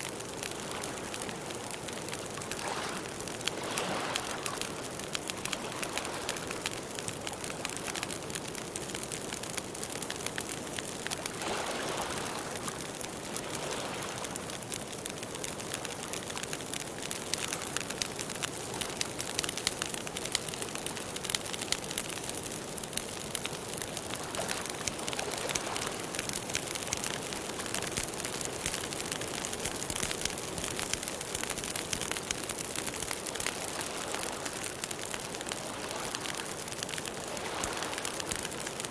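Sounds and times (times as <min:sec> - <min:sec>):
water hissing and splashing: 0:02.2 - 0:06.8.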